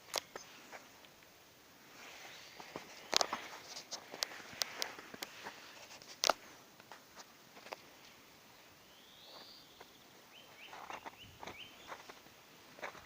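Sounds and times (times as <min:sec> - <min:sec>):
footsteps crunching in forest: 0:01.8 - 0:13.0.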